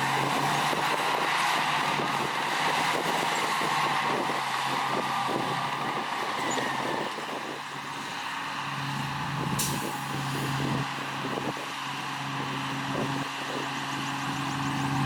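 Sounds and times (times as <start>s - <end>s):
diesel machinery engine hum: 0.0s - 15.0s
short hiss: 9.6s - 10.0s.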